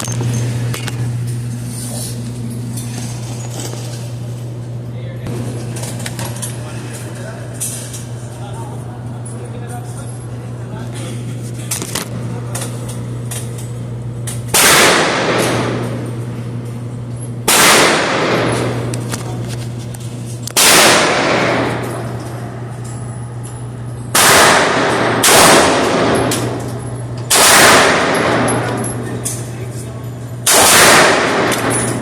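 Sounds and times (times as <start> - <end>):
steady low hum: 0.0 - 32.0
gunshots with echoing decay: 14.6 - 15.8, 17.5 - 18.8, 20.6 - 22.0, 24.2 - 26.6, 27.3 - 28.7, 30.5 - 32.0.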